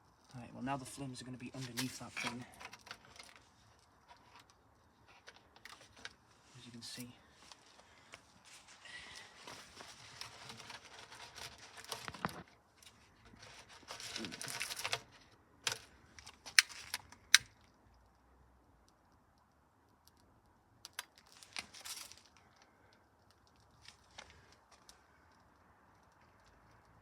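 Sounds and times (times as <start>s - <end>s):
paper crumpling and rustling: 5.1s - 17.0s, 21.2s - 22.5s.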